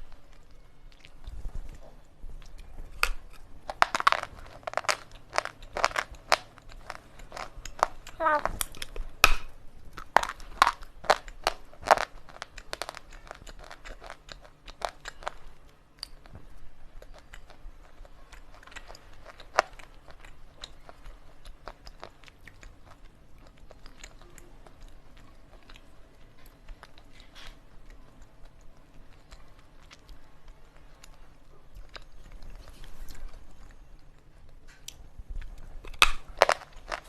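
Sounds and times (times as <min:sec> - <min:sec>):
slate pencil crunching in mouth: 0:02.4 - 0:15.4.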